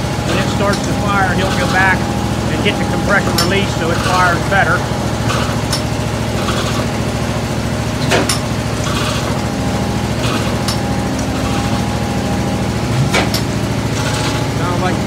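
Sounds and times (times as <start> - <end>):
engine firing pops: 0.0 - 14.7
engine running: 0.0 - 15.0.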